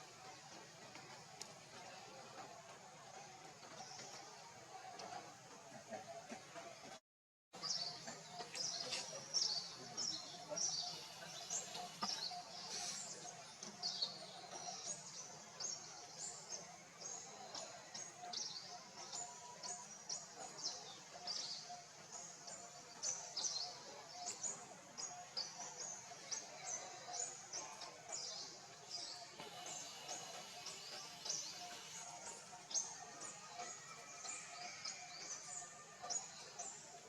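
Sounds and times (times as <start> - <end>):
small birds chirping: 7.6 - 37.0.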